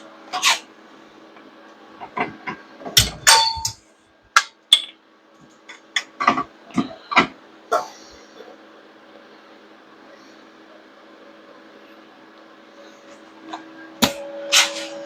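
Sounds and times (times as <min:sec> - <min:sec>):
metal clanks and knocks: 0:02.0 - 0:03.8.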